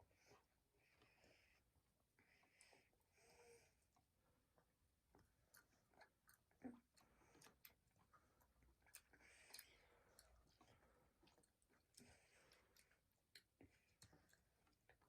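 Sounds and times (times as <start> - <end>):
mouth chewing fruit: 4.6 - 15.0.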